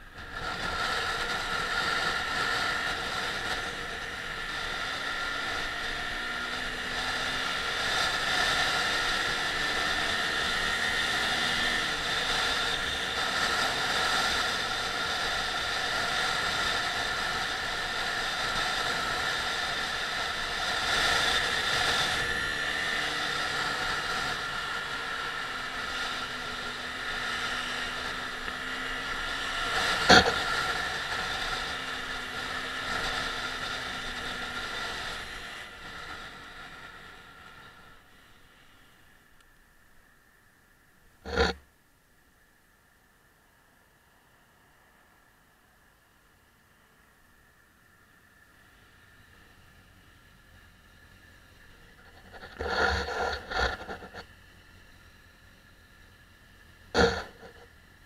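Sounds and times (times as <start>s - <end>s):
motorcycle engine accelerating: 0.0s - 39.2s, 41.2s - 41.6s, 48.8s - 58.0s.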